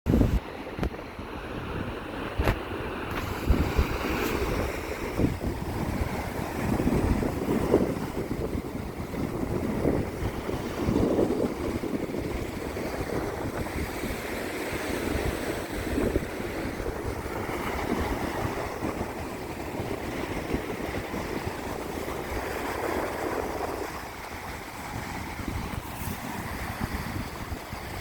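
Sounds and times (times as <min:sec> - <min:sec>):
ocean surf washing onto beach: 0:00.1 - 0:28.0
wind buffeting microphone: 0:00.1 - 0:28.0.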